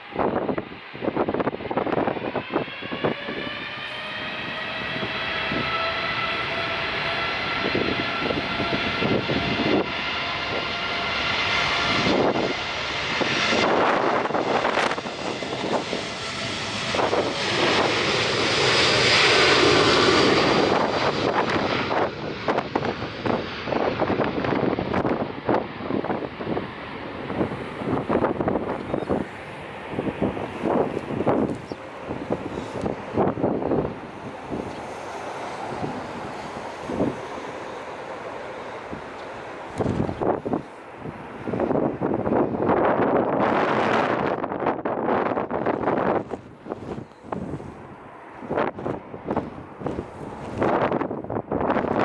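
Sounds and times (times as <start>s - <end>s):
airliner engines passing: 0.0s - 52.0s
wind buffeting microphone: 0.0s - 52.0s.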